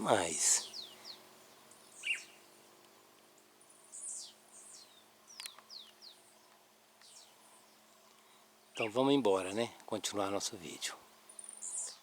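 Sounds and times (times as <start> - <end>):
birds chirping and whistling: 0.4 - 2.6, 3.6 - 8.0, 8.6 - 9.1, 11.3 - 12.0.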